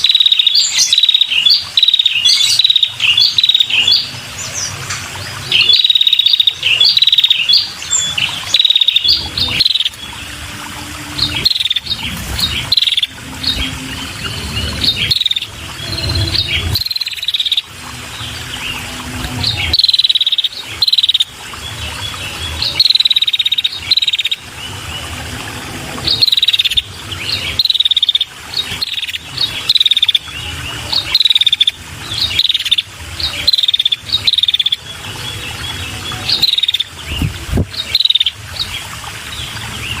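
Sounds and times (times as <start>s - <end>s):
bird chattering calls: 0.0s - 4.1s, 5.5s - 10.1s, 11.2s - 17.7s, 36.2s - 37.2s.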